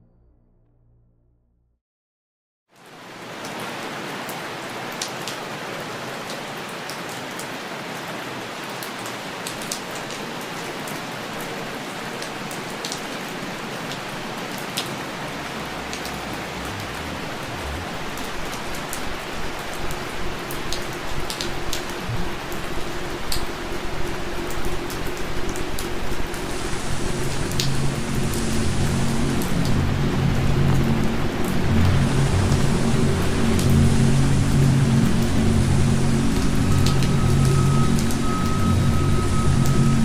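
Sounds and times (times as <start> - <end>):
steady rain falling: 2.7 - 40.0
sharp raindrop ticks: 13.8 - 26.6, 27.2 - 40.0
low rumble: 14.0 - 19.2, 22.0 - 23.7
music track: 14.8 - 18.8.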